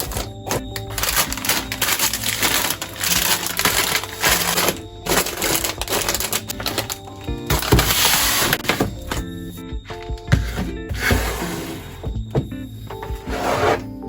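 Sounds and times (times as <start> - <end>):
plastic containers clicking and knocking: 0.0 - 9.3
plastic packaging rustling: 0.0 - 9.3.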